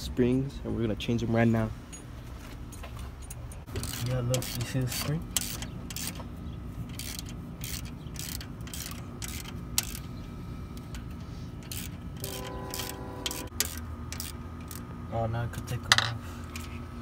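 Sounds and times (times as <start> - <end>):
low steady hum: 0.0 - 17.0
short ringing tone: 12.2 - 13.5.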